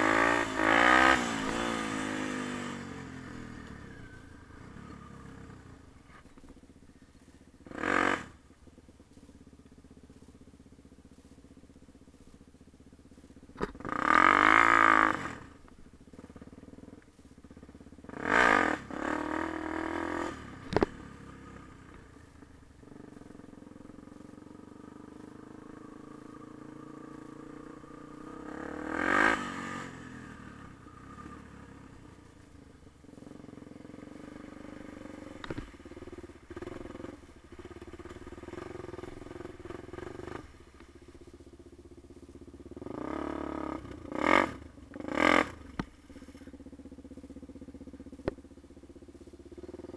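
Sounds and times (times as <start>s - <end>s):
dirt bike engine revving: 0.0s - 6.2s, 7.6s - 8.5s, 13.6s - 15.6s, 18.1s - 41.2s, 42.7s - 46.5s.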